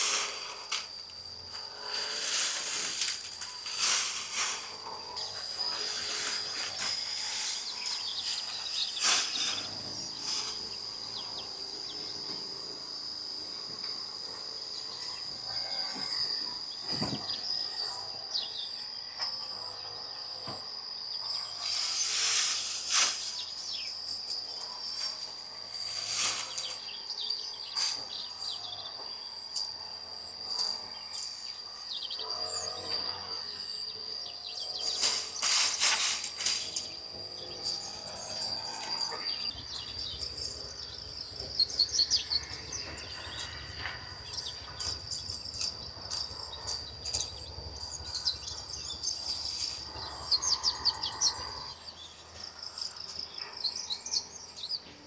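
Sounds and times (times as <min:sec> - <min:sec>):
insects trilling: 0:00.0 - 0:55.0
birds chirping: 0:36.7 - 0:55.0.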